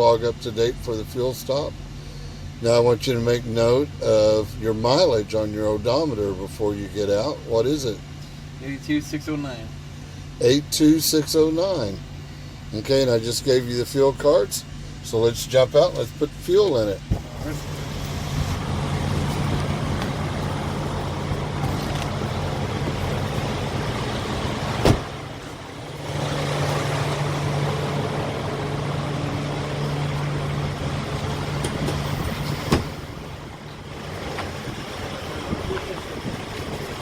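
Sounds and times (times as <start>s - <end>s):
diesel engine idling: 0.0s - 37.0s
truck doors slamming: 17.1s - 36.9s.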